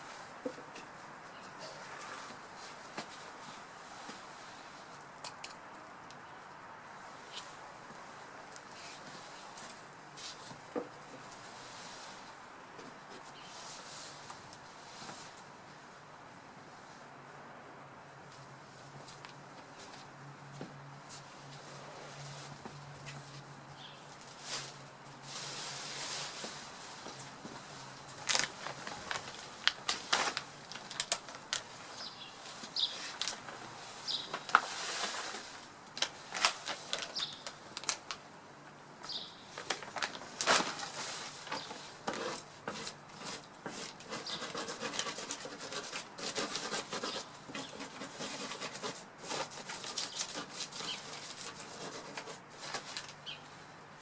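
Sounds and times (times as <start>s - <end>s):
rustling in branches: 13.2s - 15.5s, 21.2s - 38.3s, 39.1s - 45.1s, 49.2s - 53.6s.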